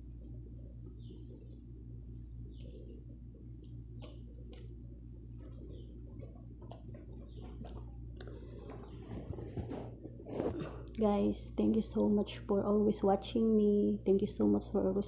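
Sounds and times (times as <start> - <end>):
small birds chirping: 0.0 - 10.7
steady low hum: 0.0 - 15.0.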